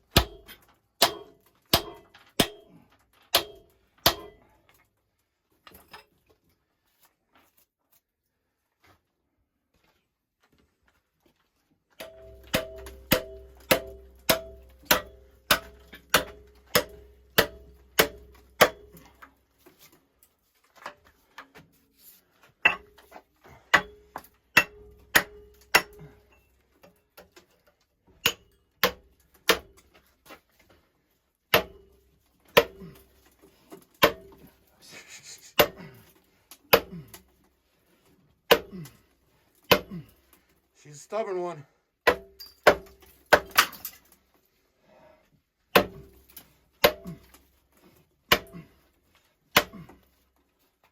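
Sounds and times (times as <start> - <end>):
hammer ringing on metal boiler: 0.1 - 2.7, 3.3 - 4.4, 12.0 - 19.0, 24.6 - 26.1.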